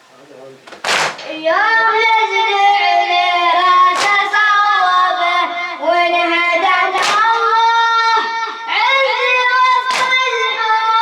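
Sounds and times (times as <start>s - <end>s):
hand striking chest: 0.7s - 1.3s, 3.7s - 4.5s, 6.7s - 7.6s, 9.6s - 10.3s
boy chanting a lament: 1.3s - 11.0s.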